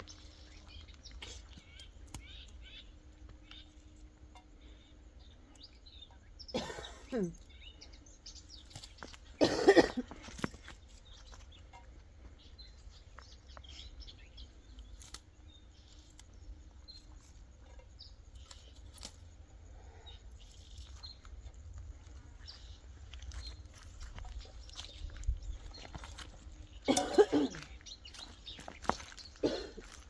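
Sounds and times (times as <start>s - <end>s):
loud cough: 6.5s - 7.3s, 9.4s - 10.2s, 26.9s - 27.7s, 29.4s - 29.9s.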